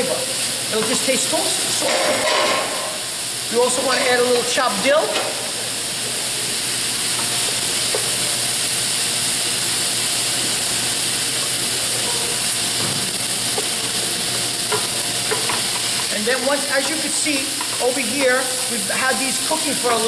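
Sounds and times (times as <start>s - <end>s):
vegetables sizzling in a pan: 0.0s - 20.0s.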